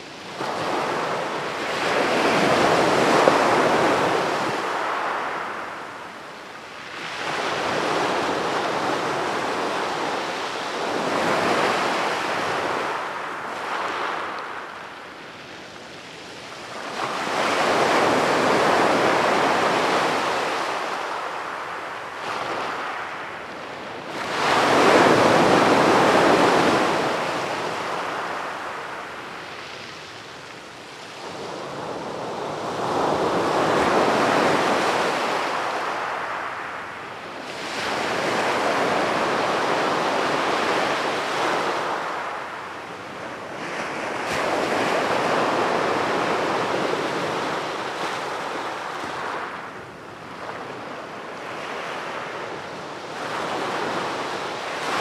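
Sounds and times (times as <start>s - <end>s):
sea waves breaking on beach: 24.1s - 55.0s.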